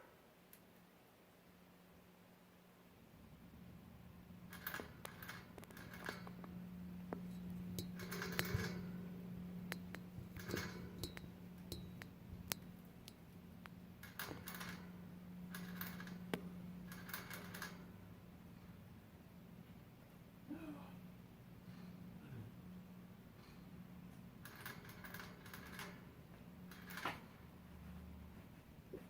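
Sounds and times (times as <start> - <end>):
steady low hum: 1.4 - 29.0
light clicking and rattling: 4.4 - 18.1, 23.4 - 28.0.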